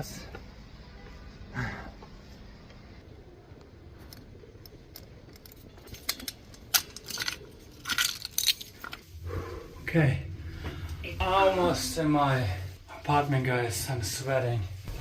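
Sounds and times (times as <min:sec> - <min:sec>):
keys jangling: 0:05.3 - 0:09.0.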